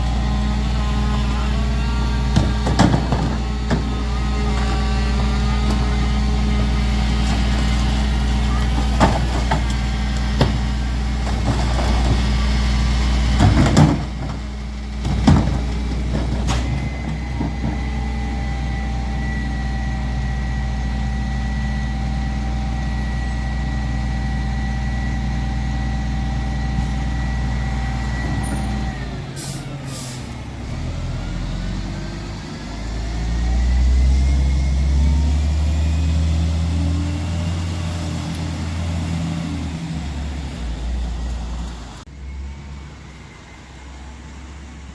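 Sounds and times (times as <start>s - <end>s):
diesel engine with high whine: 0.0s - 44.9s
air brakes hissing: 29.4s - 30.4s
engine revving: 30.5s - 41.8s.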